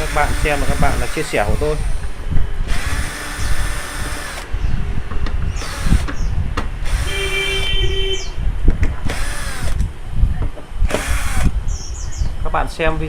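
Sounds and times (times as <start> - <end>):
electric screwdriver whirring: 0.0 - 4.5, 5.6 - 7.7, 9.0 - 9.9, 10.8 - 11.6.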